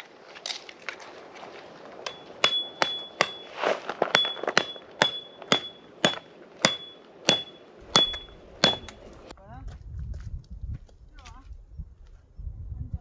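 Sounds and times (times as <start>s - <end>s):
sharp metallic strikes: 2.1s - 3.5s, 4.1s - 9.3s.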